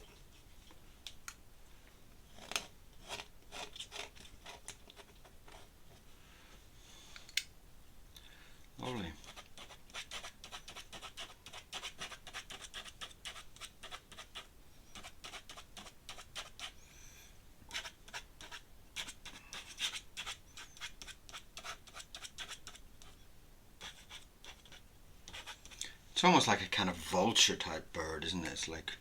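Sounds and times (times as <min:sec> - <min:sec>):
pen nib scratching paper: 0:02.4 - 0:05.7, 0:09.2 - 0:16.8, 0:17.7 - 0:23.2, 0:23.8 - 0:25.8.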